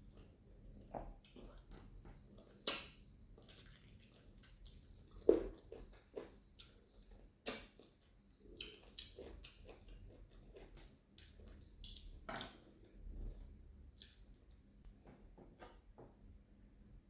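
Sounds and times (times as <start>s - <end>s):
wet chewing: 0.1s - 13.0s.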